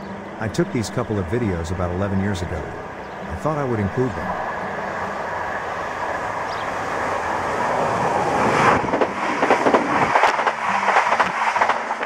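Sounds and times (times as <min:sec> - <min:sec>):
train running noise: 0:00.0 - 0:12.0
wheels clattering over track: 0:08.4 - 0:12.0.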